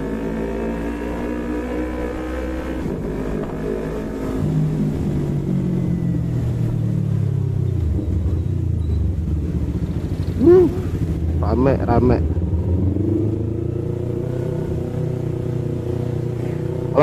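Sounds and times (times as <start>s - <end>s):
motorcycle engine running: 7.1s - 17.0s.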